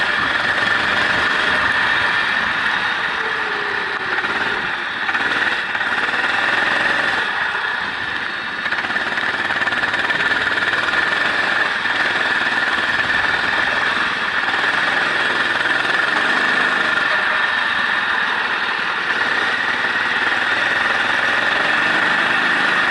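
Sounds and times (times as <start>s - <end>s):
race car engine at speed: 0.0s - 22.9s
wind and road noise: 0.0s - 22.9s.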